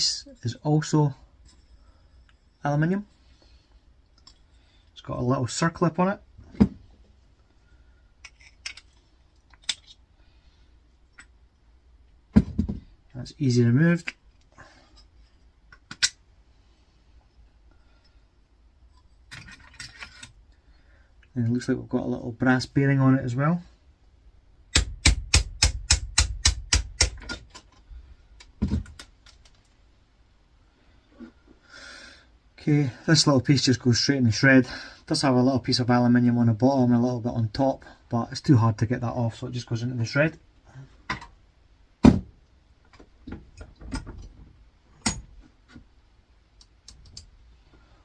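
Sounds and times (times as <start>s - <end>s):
metal parts clicking and knocking: 8.2s - 10.0s.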